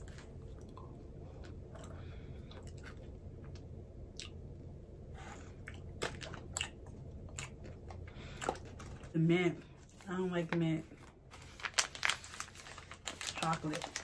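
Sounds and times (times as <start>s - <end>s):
person chewing chocolate: 0.0s - 4.5s, 5.5s - 9.1s
low steady hum: 0.0s - 14.0s.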